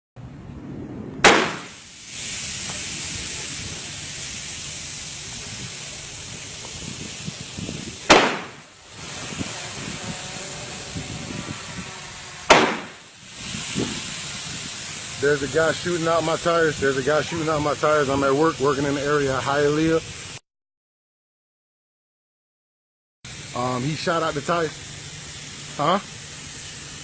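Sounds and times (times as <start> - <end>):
revolver gunshots: 1.2 - 1.9, 8.0 - 8.7, 12.5 - 13.1
steady hiss: 1.2 - 20.4, 23.3 - 27.0.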